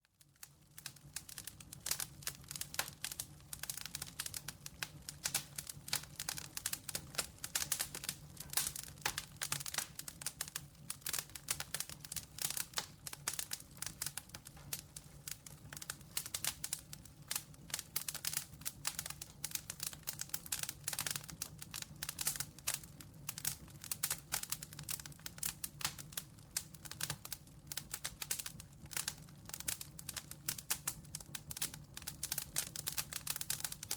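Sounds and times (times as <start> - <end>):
campfire crackling and popping: 0.2 - 33.9.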